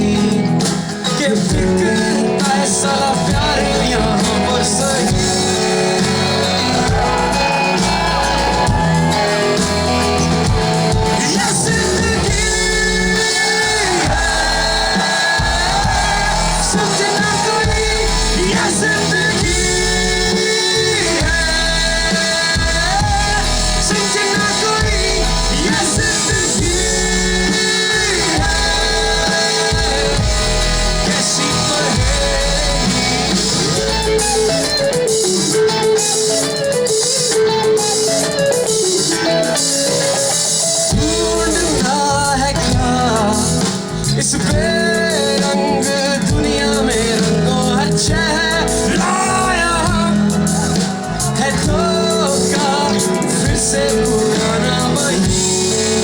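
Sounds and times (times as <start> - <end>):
person singing: 0.0 - 36.8, 37.7 - 56.0
held lead guitar notes: 0.0 - 56.0
live rock band playing: 0.0 - 56.0.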